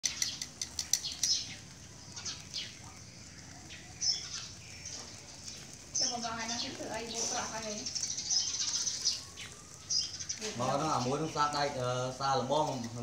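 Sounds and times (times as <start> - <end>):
sharp clicks: 0.0 - 2.8
small birds chirping: 0.0 - 13.0.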